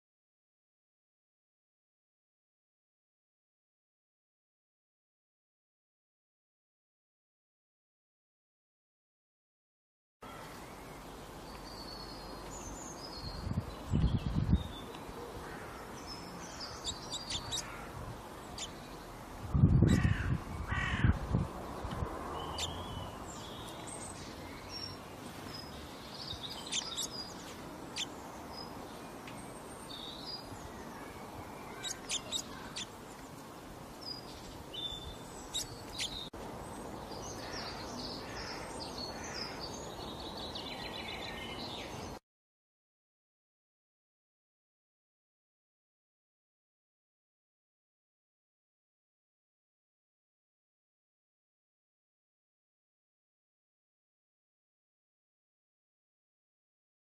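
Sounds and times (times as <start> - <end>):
small birds chirping: 10.3 - 21.0, 21.7 - 42.2
loud bird calls: 14.8 - 18.8, 22.4 - 28.2, 29.9 - 32.9, 37.2 - 41.9.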